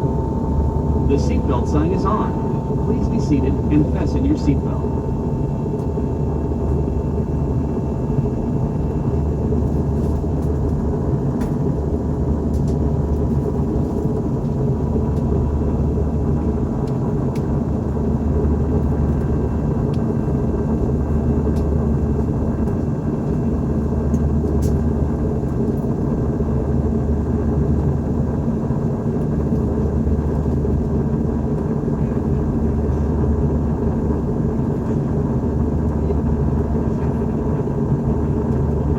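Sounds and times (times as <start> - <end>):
faint steady tones: 0.0 - 6.3
airplane cabin rumble: 0.0 - 18.2.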